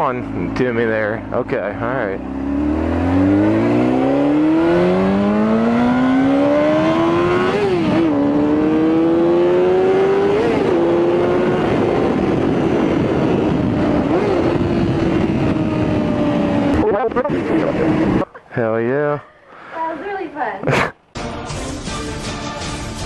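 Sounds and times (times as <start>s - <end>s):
motorcycle engine accelerating: 0.0s - 18.2s
wind noise: 2.7s - 18.3s.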